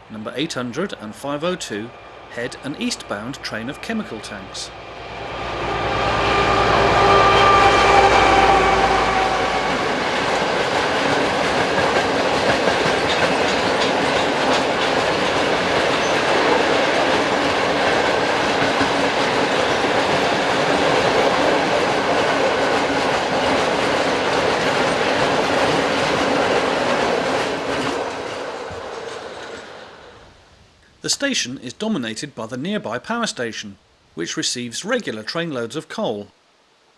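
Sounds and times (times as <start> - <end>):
freight train wheels clattering: 9.6 - 29.8.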